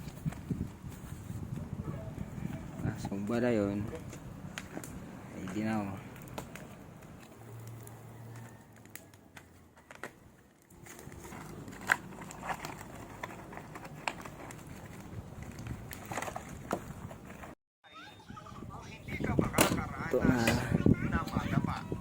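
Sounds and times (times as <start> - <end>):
fish crackling on a fire: 3.2 - 12.9.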